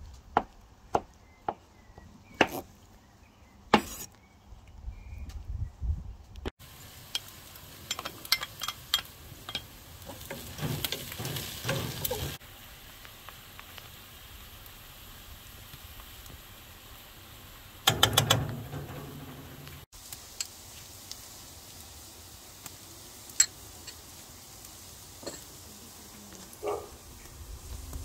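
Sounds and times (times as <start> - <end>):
wooden spoon scraping pot: 3.8 - 4.2
onions sizzling: 6.6 - 28.0
metal spoon knocking pot: 17.9 - 19.7.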